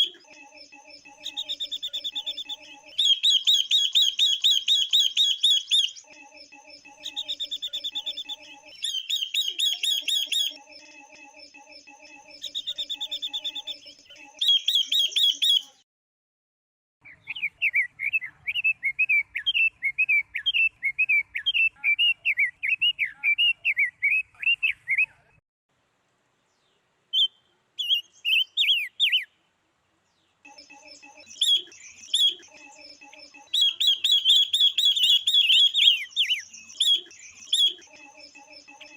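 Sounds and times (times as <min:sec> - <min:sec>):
birds chirping high notes: 0:00.0 - 0:15.8, 0:30.5 - 0:38.9
warbling bird chatter: 0:00.0 - 0:15.8, 0:30.5 - 0:38.9.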